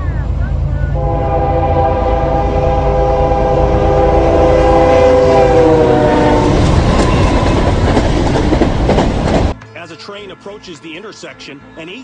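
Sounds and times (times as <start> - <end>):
moving train rumble: 0.0 - 9.6
locomotive air horn blast: 0.9 - 7.7.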